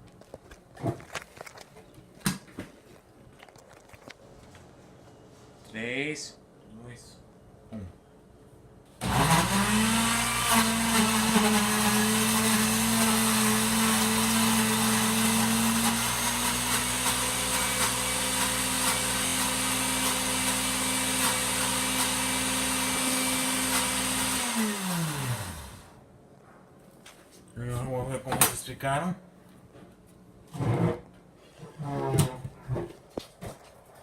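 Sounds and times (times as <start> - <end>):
blender running: 9.0 - 26.0.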